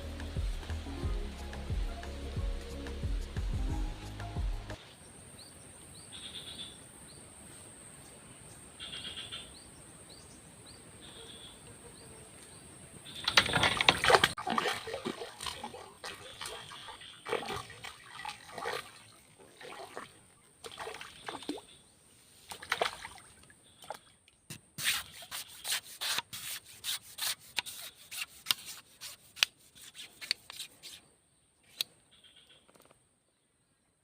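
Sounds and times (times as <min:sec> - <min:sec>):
water splashing: 0:13.2 - 0:21.8, 0:22.4 - 0:24.2
fish slapping and tapping: 0:13.3 - 0:16.6.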